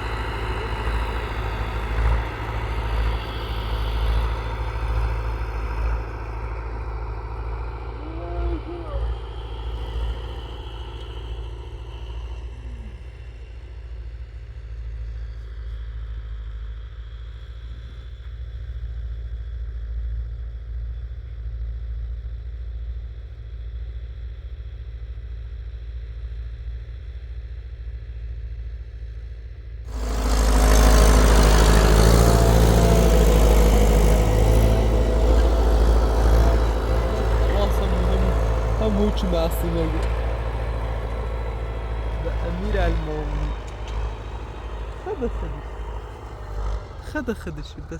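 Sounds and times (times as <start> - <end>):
tractor engine rumbling: 0.0 - 14.4, 29.9 - 47.9.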